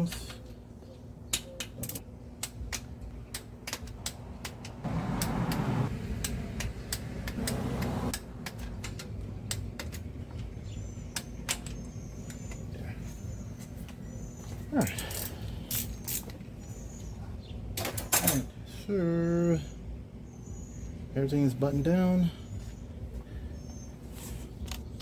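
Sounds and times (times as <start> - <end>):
scraping rustling noises: 24.0 - 24.9.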